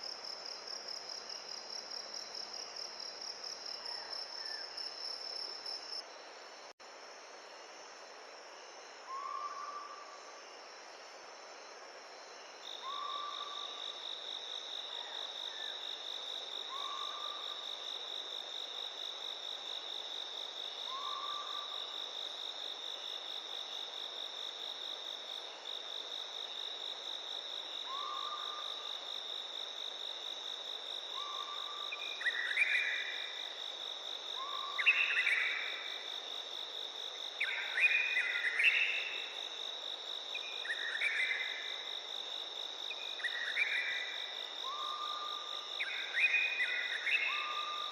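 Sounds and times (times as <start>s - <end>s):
insects trilling: 12.2s - 47.9s.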